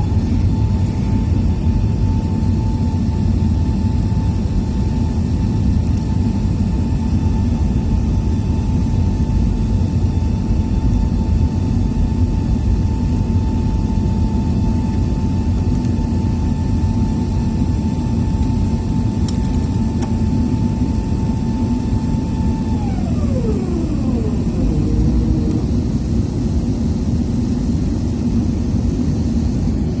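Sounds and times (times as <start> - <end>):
thin engine whine: 0.0 - 5.2, 19.6 - 27.9
jet engines roaring: 0.0 - 14.5, 19.3 - 30.0.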